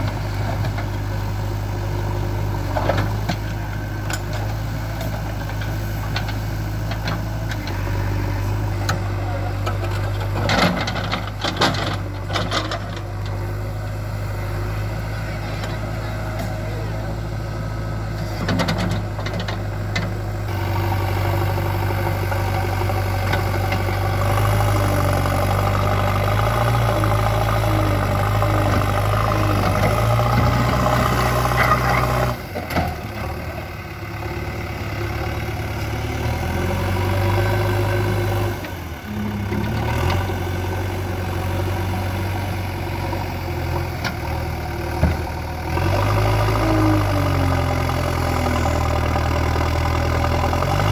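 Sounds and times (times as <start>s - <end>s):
backhoe diesel engine running: 0.0s - 50.9s.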